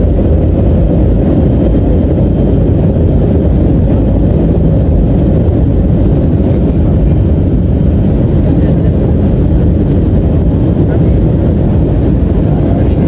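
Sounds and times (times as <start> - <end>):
jet engines rumbling in cabin: 0.0 - 13.0.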